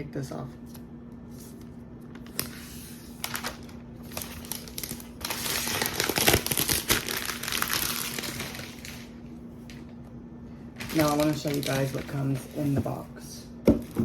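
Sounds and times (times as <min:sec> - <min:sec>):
packaging wrap crinkling: 0:02.2 - 0:09.9, 0:10.7 - 0:12.7.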